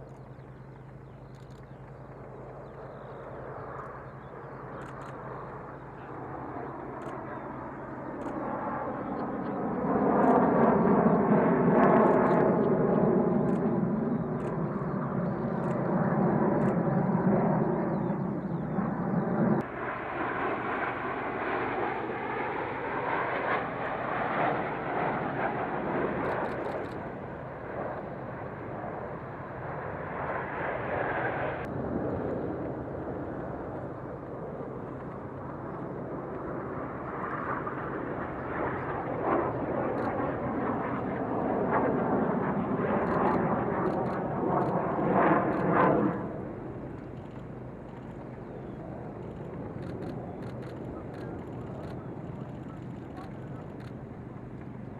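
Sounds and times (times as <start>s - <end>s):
jet engine roar: 0.0s - 54.9s.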